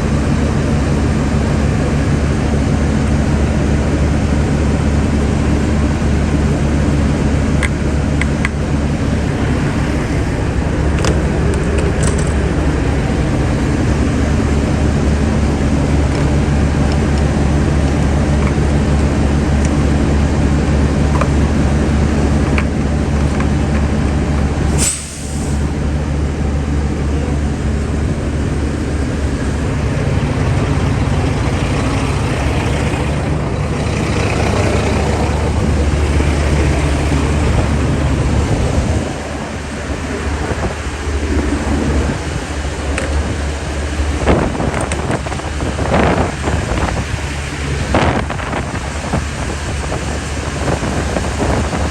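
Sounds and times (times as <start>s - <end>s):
truck diesel engine idling: 0.0s - 51.9s
short hiss: 24.7s - 25.6s.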